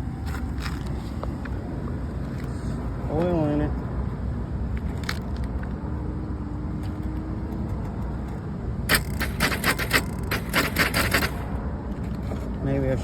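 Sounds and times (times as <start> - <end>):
traffic rumble: 0.0 - 13.0
rapid sharp clicks and rattles: 8.9 - 12.2.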